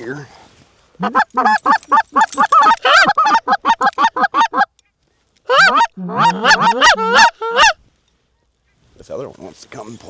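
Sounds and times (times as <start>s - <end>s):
goose call honks: 1.0s - 4.7s, 5.5s - 7.8s.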